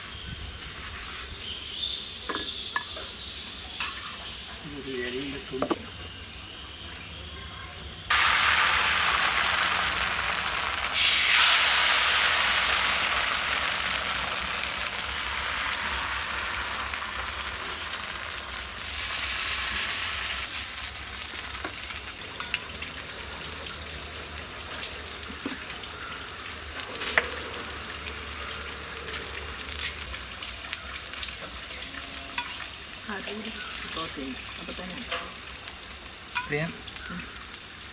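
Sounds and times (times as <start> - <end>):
batter sizzling on griddle: 0.0 - 7.2, 8.1 - 37.9
small crackles and pops: 8.1 - 19.2, 20.1 - 37.9.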